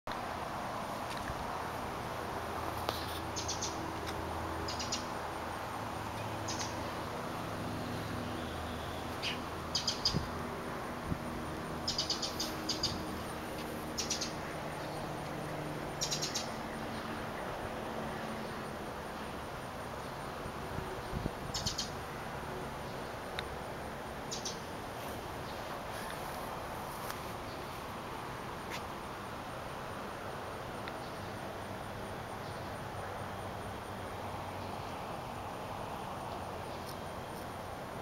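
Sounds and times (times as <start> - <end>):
steady background noise: 0.1 - 38.0
small birds chirping: 2.8 - 5.2, 6.0 - 7.0, 7.9 - 10.3, 11.8 - 17.2, 21.0 - 22.0, 24.3 - 24.7.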